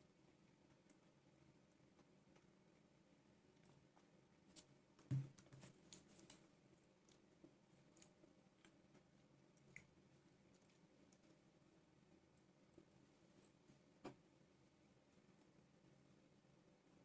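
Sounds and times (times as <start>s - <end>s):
faint small clicks and taps: 3.6s - 11.4s, 12.3s - 14.2s
soft thump: 5.1s - 5.4s.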